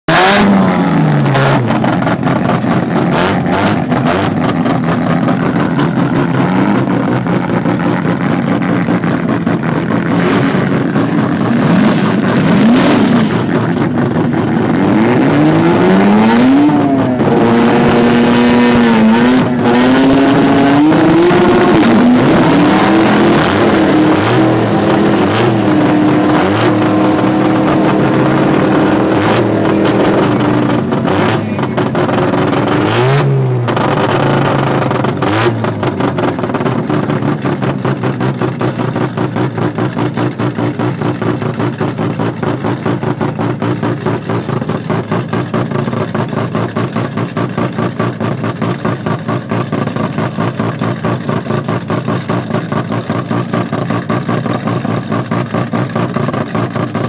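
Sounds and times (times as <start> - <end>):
car engine revving loudly: 0.1 - 57.0.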